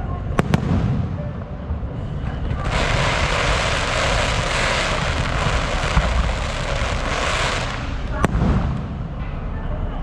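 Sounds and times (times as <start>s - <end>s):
low rumble: 0.0s - 10.0s
fireworks hissing: 2.5s - 8.3s.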